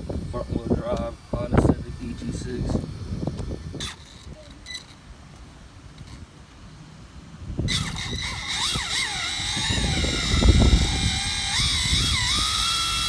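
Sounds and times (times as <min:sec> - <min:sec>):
electric motor whining: 0:00.0 - 0:05.1, 0:07.6 - 0:13.0.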